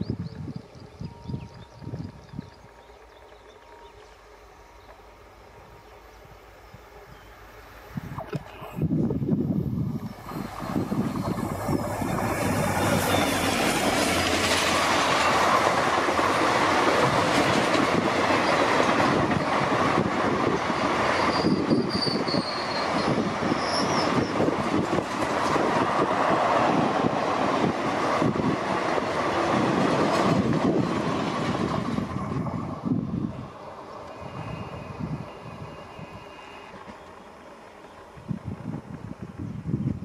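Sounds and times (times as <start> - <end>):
train wheels rumbling on rails: 0.0 - 40.0
wheel squeal: 10.0 - 13.6, 21.1 - 24.5
clickety-clack over rail joints: 10.2 - 33.0, 36.7 - 39.5.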